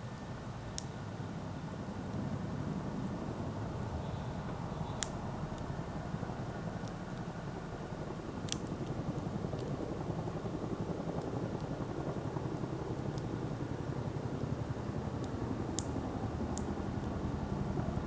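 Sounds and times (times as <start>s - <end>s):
campfire burning: 0.1s - 18.0s
wood popping in fire: 4.8s - 17.8s.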